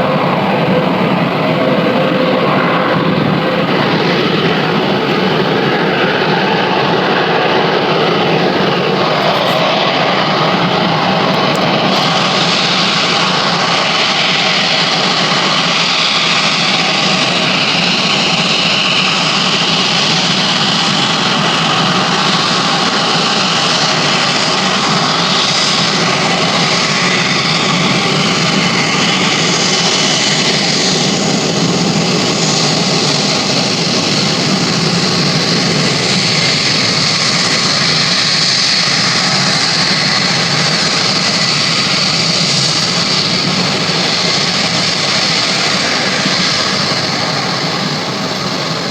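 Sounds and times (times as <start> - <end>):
airplane engines running: 0.0 - 48.9.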